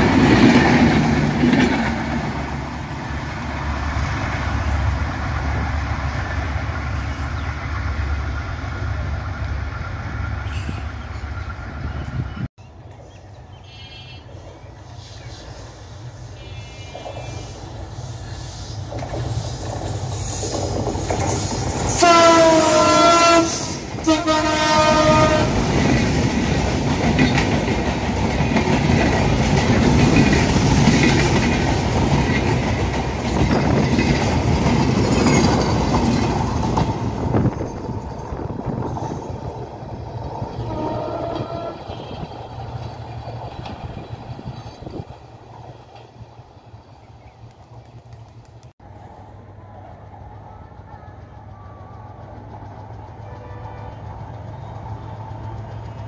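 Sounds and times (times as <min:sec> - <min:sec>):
diesel locomotive approaching: 0:00.0 - 0:56.0
train air horn blasts: 0:21.9 - 0:25.6, 0:40.6 - 0:42.3.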